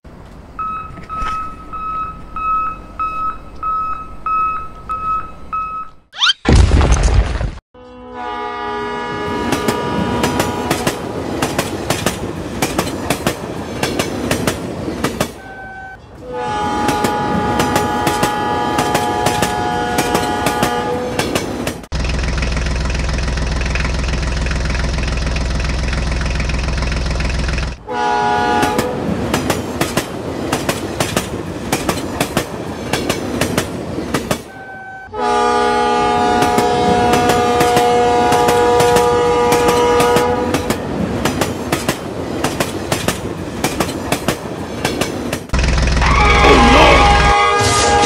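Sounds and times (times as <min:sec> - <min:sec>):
train horn: 0:07.8 - 0:11.3, 0:15.4 - 0:21.3, 0:27.8 - 0:29.1, 0:34.5 - 0:40.8, 0:46.0 - 0:48.0.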